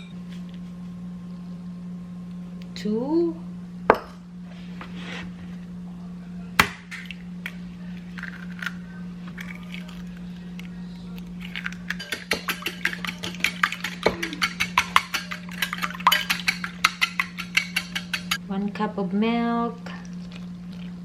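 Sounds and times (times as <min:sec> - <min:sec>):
low electrical hum: 0:00.0 - 0:21.0
fast even stirring clicks: 0:11.4 - 0:18.4
utensil knocking against bowl: 0:12.0 - 0:18.4.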